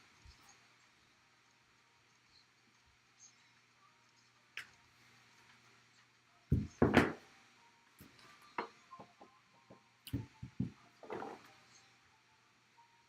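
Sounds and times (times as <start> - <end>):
loud thumps on a table: 6.5 - 7.2.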